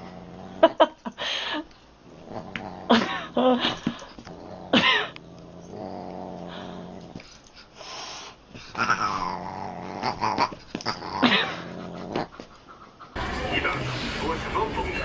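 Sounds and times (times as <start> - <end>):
pet growling low: 0.0 - 0.9, 2.0 - 7.3, 8.7 - 12.4.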